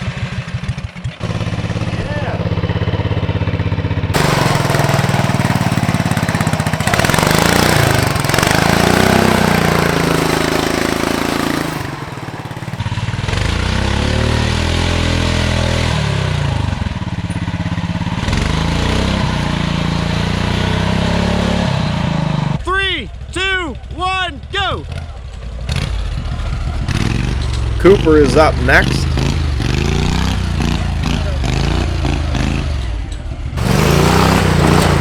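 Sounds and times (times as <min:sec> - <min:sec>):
lawn tractor engine revving: 0:00.0 - 0:16.4, 0:33.6 - 0:35.0.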